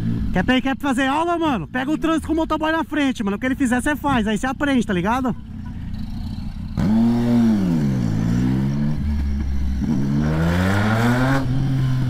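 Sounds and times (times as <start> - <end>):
motorcycle engine revving: 0.0 - 0.8, 5.4 - 12.0.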